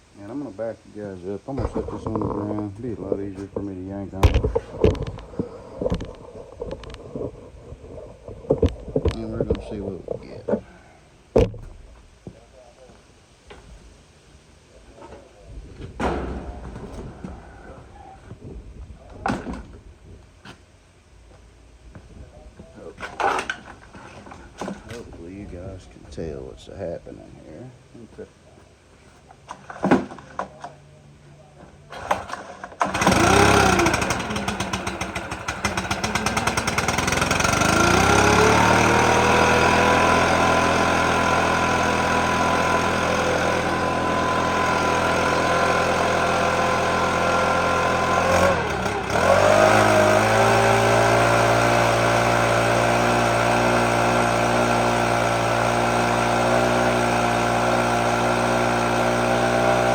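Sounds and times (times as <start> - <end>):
blower engine running: 1.6 - 10.7, 31.9 - 59.9
pull starter rattling: 23.0 - 25.1, 31.9 - 59.9.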